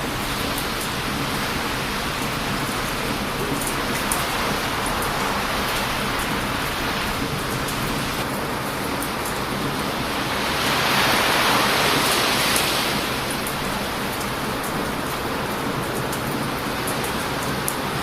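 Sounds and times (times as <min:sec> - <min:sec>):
campfire crackling: 0:00.0 - 0:18.0
strong wind: 0:00.0 - 0:18.0
surf breaking on a beach: 0:00.0 - 0:18.0.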